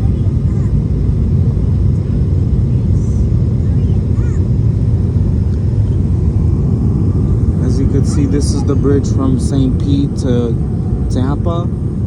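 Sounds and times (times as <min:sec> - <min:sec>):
airplane engines in cabin: 0:00.0 - 0:12.0
air rushing around fuselage: 0:04.6 - 0:12.0.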